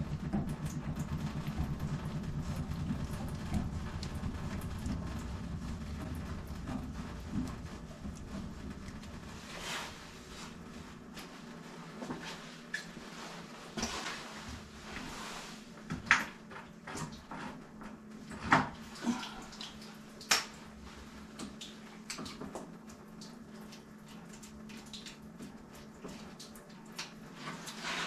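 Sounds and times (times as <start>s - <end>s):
knocks and clanks on pipes: 0.0s - 9.0s
water splashing and dripping: 0.0s - 11.3s, 18.3s - 28.0s
steady low hum: 0.0s - 13.6s.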